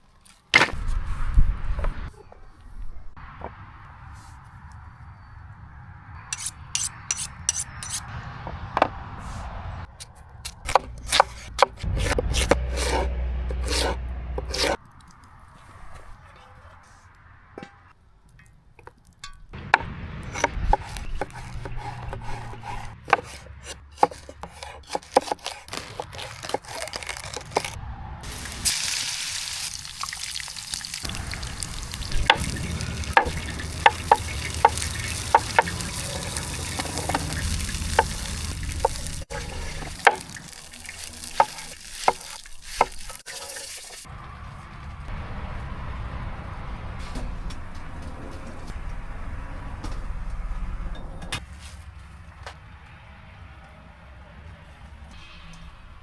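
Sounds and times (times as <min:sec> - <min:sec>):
food sizzling in a pan: 0:28.3 - 0:44.1.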